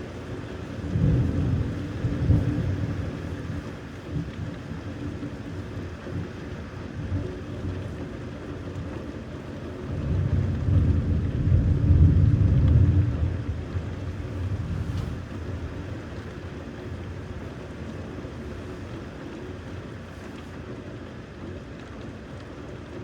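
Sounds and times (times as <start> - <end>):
steady rain: 0.0 - 23.0
thunder rumbling: 0.6 - 4.3, 9.9 - 17.4.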